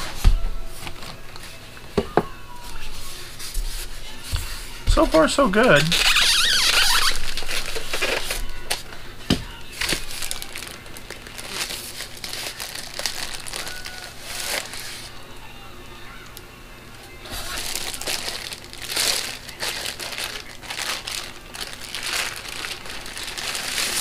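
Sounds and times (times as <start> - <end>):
packaging crinkling and rustling: 4.9 - 8.8, 9.7 - 15.1, 17.3 - 24.0.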